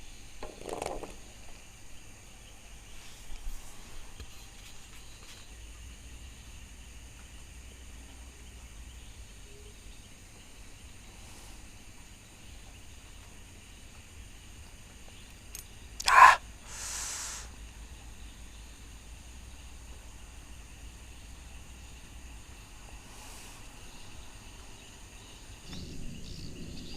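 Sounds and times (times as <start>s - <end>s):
night insects trilling: 0.0s - 26.9s
hiss: 11.1s - 11.9s, 16.0s - 17.8s, 23.0s - 23.9s.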